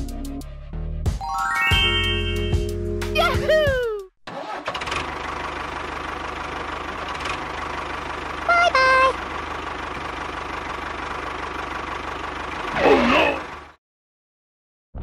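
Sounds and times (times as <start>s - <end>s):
tractor engine idling: 4.3s - 13.8s.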